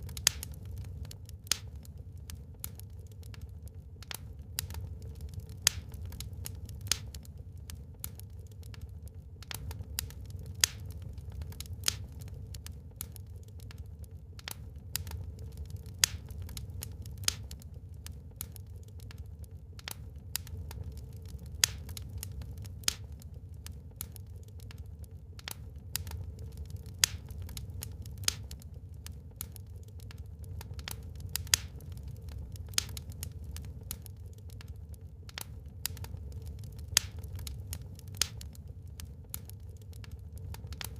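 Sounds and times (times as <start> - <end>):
wood fire crackling and popping: 0.0 - 40.9.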